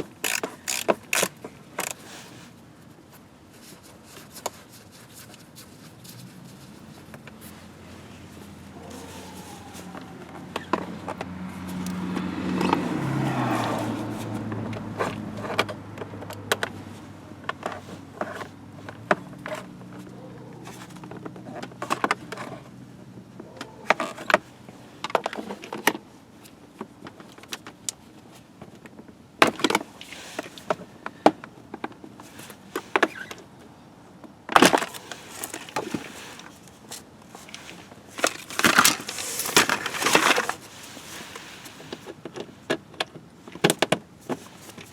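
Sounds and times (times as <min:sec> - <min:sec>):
clicks and knocks of hand work: 0:00.0 - 0:02.0.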